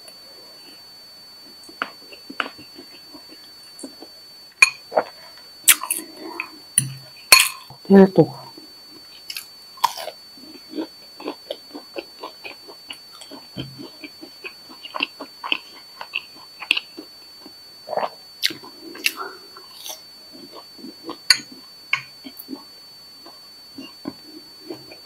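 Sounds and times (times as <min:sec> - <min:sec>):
person chewing crunchy snack: 0:09.2 - 0:25.0.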